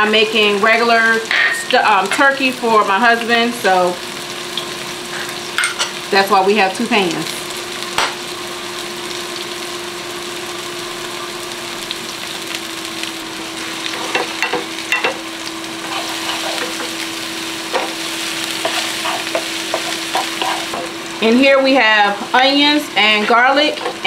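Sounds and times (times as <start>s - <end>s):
onions sizzling in oil: 0.0s - 24.0s
spatulas scraping pans: 13.8s - 15.2s, 15.8s - 17.0s, 18.6s - 20.9s, 23.0s - 24.0s.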